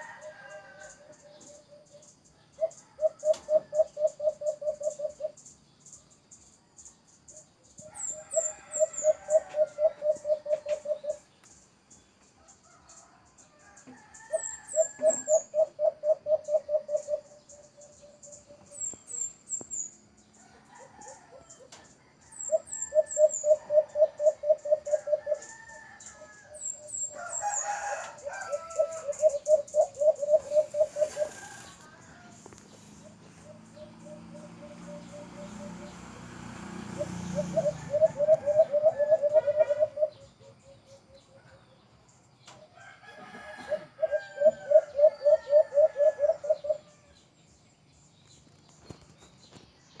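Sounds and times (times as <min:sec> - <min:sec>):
doves cooing: 0:00.0 - 0:05.4, 0:07.8 - 0:11.3, 0:13.9 - 0:19.6, 0:20.4 - 0:41.6, 0:43.0 - 0:47.1.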